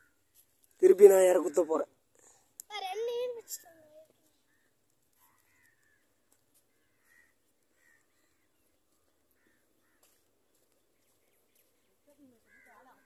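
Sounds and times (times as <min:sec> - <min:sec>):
distant short bird calls: 0:03.4 - 0:13.0.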